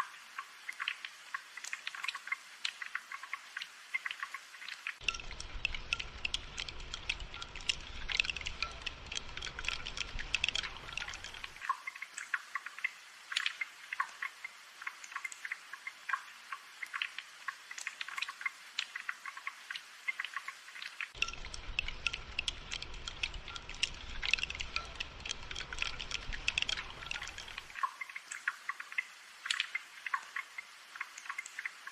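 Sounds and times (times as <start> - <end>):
raindrops pattering and dripping: 0.0 - 31.9.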